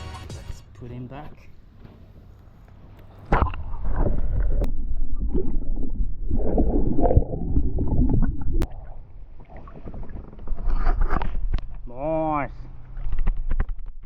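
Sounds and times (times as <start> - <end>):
water splashing and gurgling: 3.3 - 11.6.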